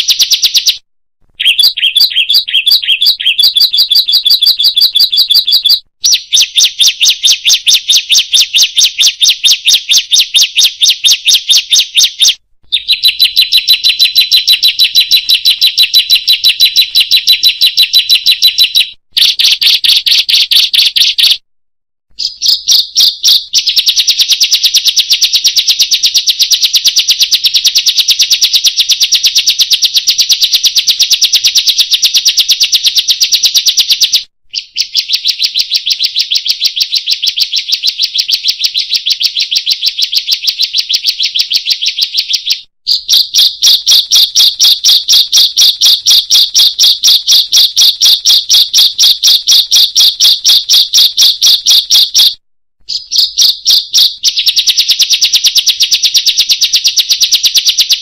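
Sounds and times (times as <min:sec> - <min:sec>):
songbirds chirping rapidly: 0:01.4 - 0:20.2, 0:52.9 - 0:54.1.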